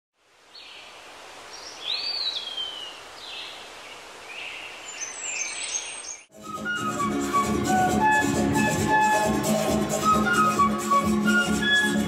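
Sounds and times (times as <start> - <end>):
outdoor hiss: 0.2 - 5.5
rising and sliding whistle: 6.4 - 12.0.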